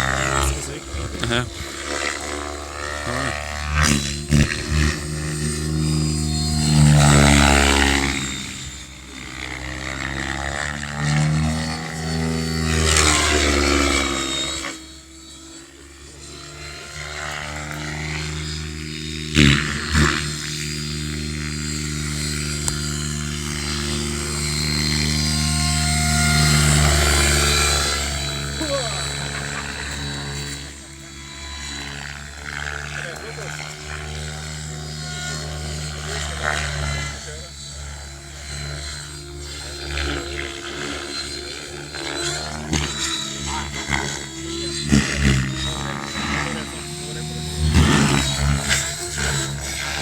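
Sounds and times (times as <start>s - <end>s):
model helicopter motor and rotor hum: 0.0s - 50.0s.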